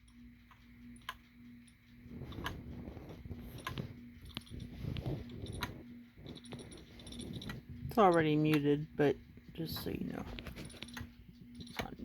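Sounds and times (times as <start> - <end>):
faint low hum: 0.0 - 12.0
laptop clicking: 9.6 - 12.0.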